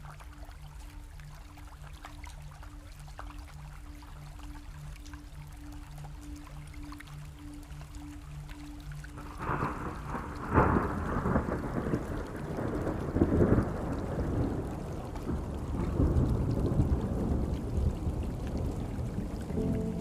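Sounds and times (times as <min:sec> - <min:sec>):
steady rain: 0:00.0 - 0:20.0
thunder rumbling: 0:09.2 - 0:20.0.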